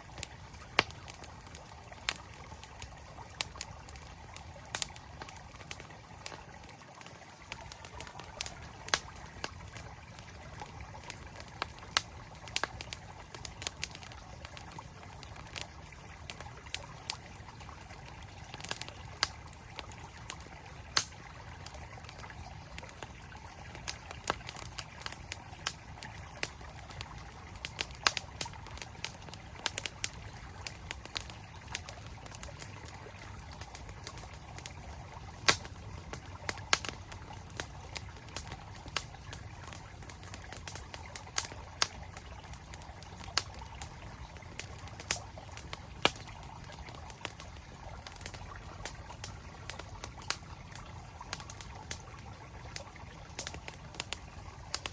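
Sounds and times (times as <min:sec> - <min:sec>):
campfire crackling and popping: 0:00.0 - 0:54.9
flowing stream: 0:00.0 - 0:54.9.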